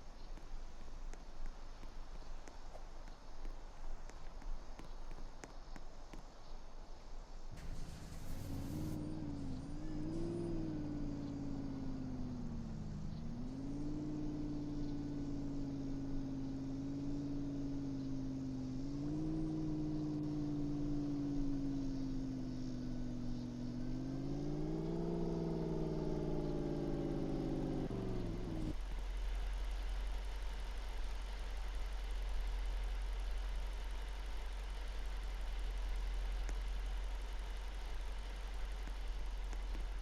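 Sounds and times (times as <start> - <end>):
truck engine revving: 7.6 - 28.8.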